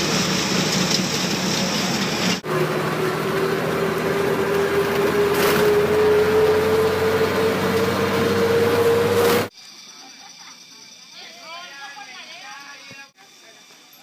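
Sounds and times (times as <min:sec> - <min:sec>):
bus engine drone: 0:00.0 - 0:09.5
road noise: 0:00.0 - 0:09.5.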